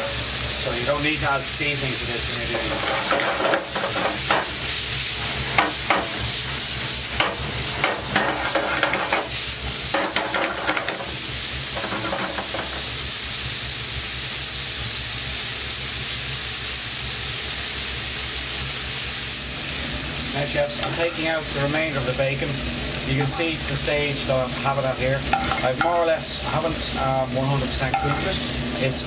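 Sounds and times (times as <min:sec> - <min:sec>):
bacon sizzling in a pan: 0:00.0 - 0:29.0
utensil knocking and scraping: 0:02.5 - 0:04.5, 0:07.2 - 0:09.3, 0:11.8 - 0:12.8.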